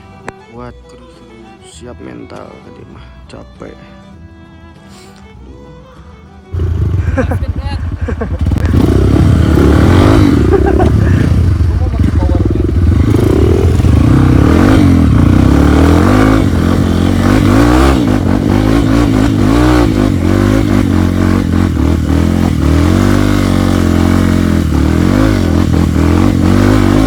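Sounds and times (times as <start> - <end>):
motorcycle engine revving: 6.4 - 27.0.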